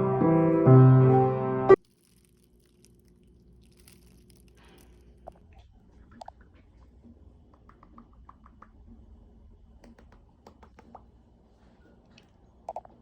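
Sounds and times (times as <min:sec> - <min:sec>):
small objects clicking and tapping: 0:01.8 - 0:05.4
low room hum: 0:01.8 - 0:13.0.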